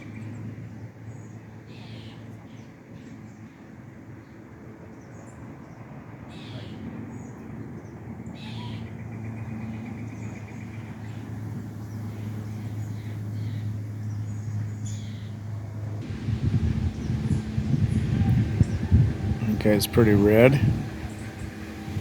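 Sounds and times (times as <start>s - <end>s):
songbirds chirping: 0.0s - 22.0s
low mechanical hum: 7.8s - 22.0s.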